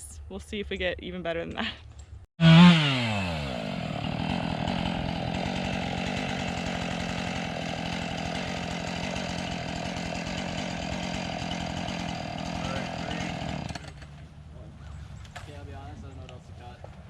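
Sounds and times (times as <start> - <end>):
chainsaw engine running: 2.4 - 14.2.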